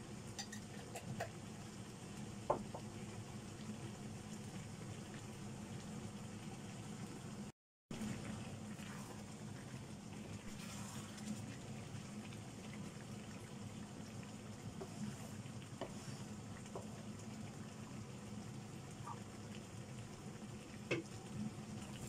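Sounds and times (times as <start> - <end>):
chicken sizzling in wok: 8.0 - 12.9.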